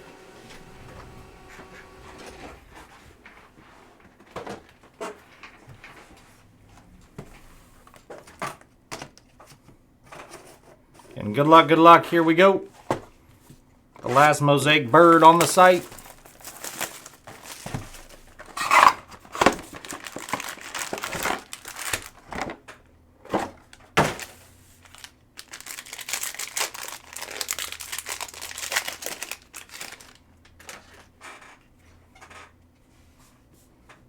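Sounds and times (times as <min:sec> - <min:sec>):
plastic wrappers crinkling and tearing: 0:15.0 - 0:22.6, 0:23.7 - 0:31.4.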